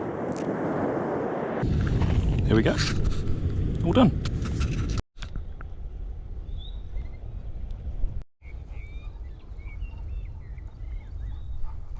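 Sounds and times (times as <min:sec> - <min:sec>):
low rumble of wind: 0:00.0 - 0:11.9
small birds chirping: 0:06.4 - 0:07.6, 0:08.4 - 0:11.7.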